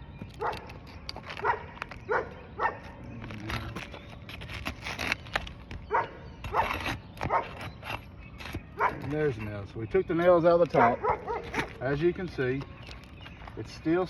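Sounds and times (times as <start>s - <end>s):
dog barking: 1.4s - 2.9s, 5.9s - 6.7s, 7.3s - 7.6s, 8.8s - 9.1s, 10.8s - 11.7s.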